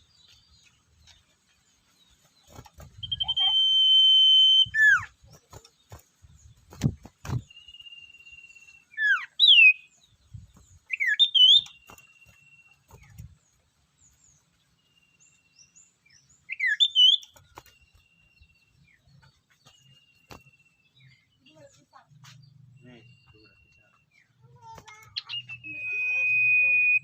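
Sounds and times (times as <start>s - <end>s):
songbird whistled calls: 3.0s - 5.2s, 7.5s - 10.0s, 10.9s - 12.7s, 16.5s - 17.4s, 25.2s - 27.0s
thin high whistles: 25.3s - 27.0s.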